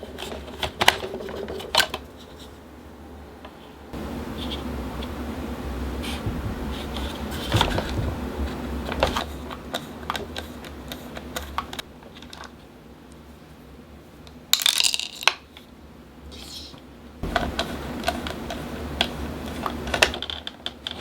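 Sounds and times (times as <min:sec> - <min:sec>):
steady low hum: 0:02.0 - 0:11.9, 0:16.9 - 0:19.6.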